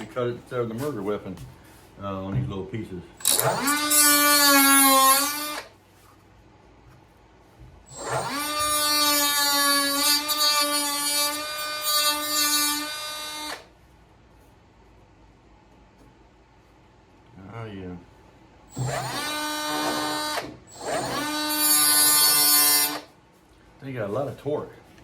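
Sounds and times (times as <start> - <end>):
power cutting tool whining: 3.2 - 5.7, 7.9 - 13.7, 18.7 - 23.1.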